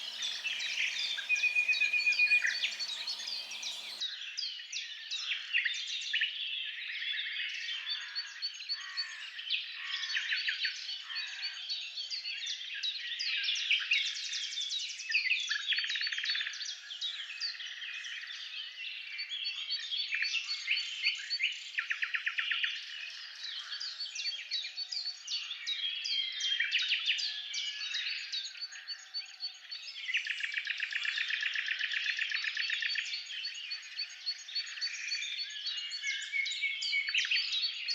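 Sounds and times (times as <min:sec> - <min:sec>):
birds chirping and trilling: 0:00.0 - 0:04.0.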